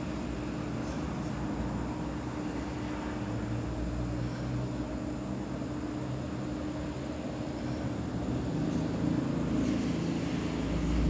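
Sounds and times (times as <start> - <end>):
low hum: 9.6 - 11.0.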